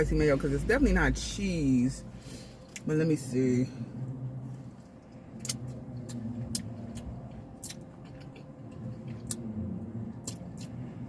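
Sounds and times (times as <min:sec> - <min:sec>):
low steady hum: 0:00.0 - 0:11.0
chewing and wet mouth clicks: 0:04.9 - 0:10.9.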